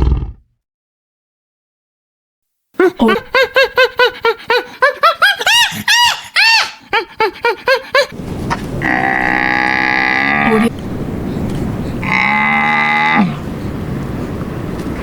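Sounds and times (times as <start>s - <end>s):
cow mooing: 8.8s - 10.7s, 12.0s - 13.4s.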